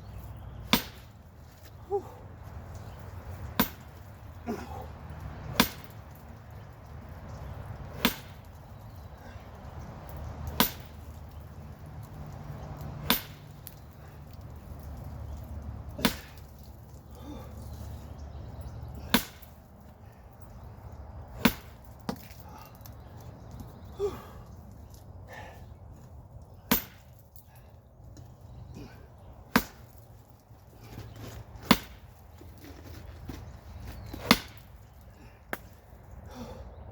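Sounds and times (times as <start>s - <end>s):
sledgehammer strikes: 0.6s - 1.2s, 3.4s - 4.0s, 5.5s - 6.2s, 7.8s - 8.6s, 10.4s - 11.3s, 13.0s - 13.8s, 15.9s - 16.7s, 19.0s - 19.6s, 21.3s - 22.4s, 26.6s - 27.2s, 29.5s - 30.0s, 31.6s - 32.2s, 34.1s - 34.7s
sledgehammer blows: 5.5s - 6.2s, 7.7s - 8.6s, 12.1s - 14.9s, 15.9s - 17.5s, 19.0s - 19.6s, 21.3s - 22.6s.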